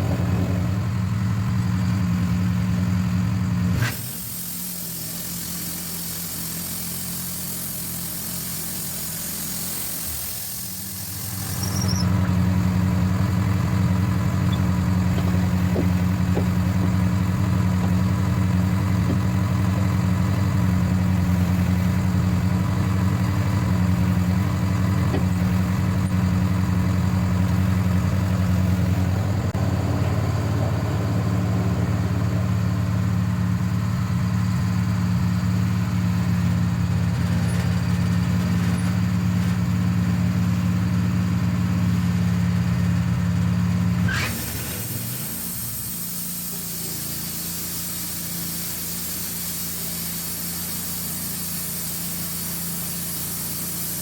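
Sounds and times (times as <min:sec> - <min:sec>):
sawmill engine running: 0:00.0 - 0:54.0
steady hiss: 0:03.8 - 0:12.1, 0:44.1 - 0:54.0
rising squeal: 0:10.6 - 0:12.5, 0:13.8 - 0:21.8.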